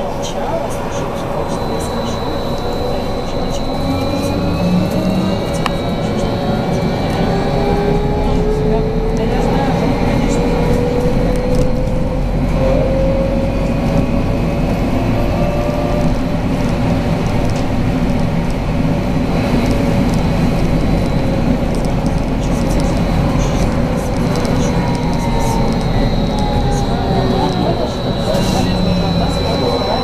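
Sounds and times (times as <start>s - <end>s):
trolleybus road noise: 0.0s - 30.0s
electric drive whine: 0.8s - 30.0s.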